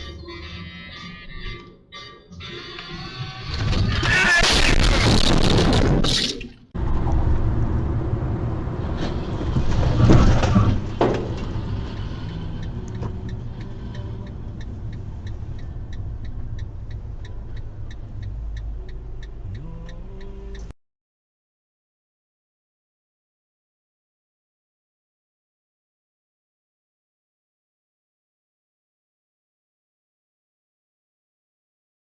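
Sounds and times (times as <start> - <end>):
vehicle rumble: 6.7 - 20.8
regular ticking: 11.1 - 20.8.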